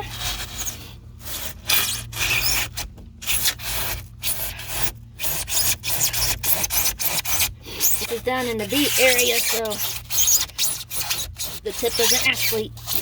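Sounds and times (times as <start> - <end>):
knife sawing through foam: 0.0 - 13.0.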